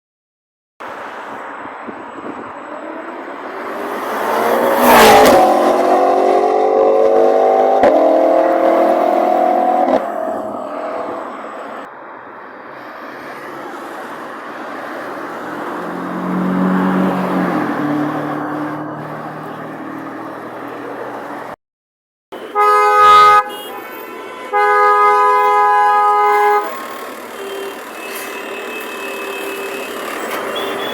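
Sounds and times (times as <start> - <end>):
supercar engine accelerating past: 2.8 - 11.6, 15.7 - 20.7.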